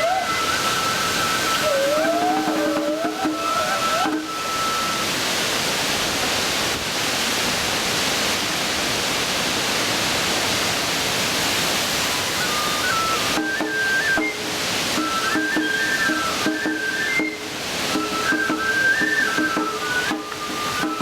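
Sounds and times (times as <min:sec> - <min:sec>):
wavering flute melody: 0:00.0 - 0:05.4, 0:11.8 - 0:21.0.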